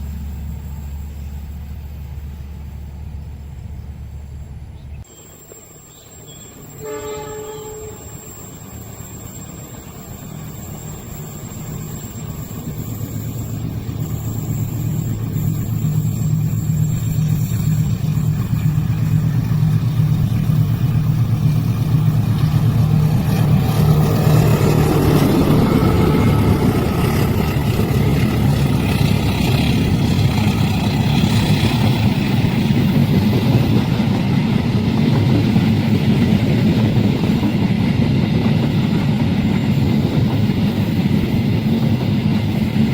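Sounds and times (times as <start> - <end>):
train engine hum: 0.0 - 42.9
train rushing and rolling past: 0.0 - 42.9.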